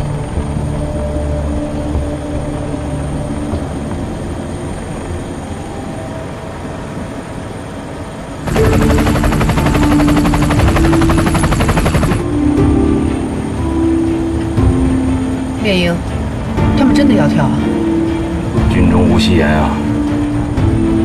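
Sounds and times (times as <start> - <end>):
aircraft engine drone: 0.0 - 21.0
pulsing rotor blade chop: 8.4 - 12.4.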